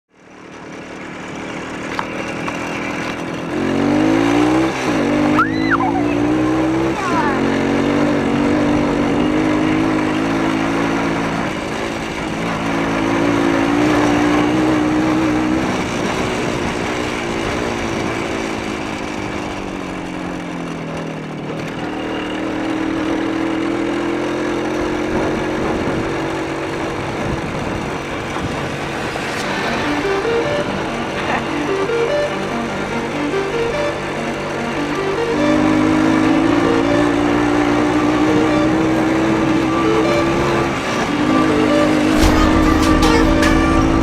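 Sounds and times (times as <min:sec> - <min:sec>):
two-stroke motorcycle engine running: 0:00.1 - 0:44.0.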